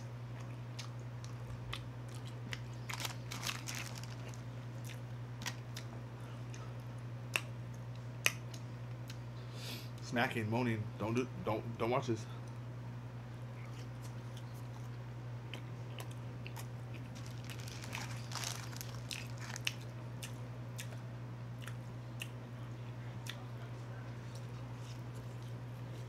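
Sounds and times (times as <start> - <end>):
steady low hum: 0.0 - 26.0
person chewing and crunching food: 0.3 - 9.3, 13.5 - 22.4, 23.2 - 23.5, 24.2 - 26.0.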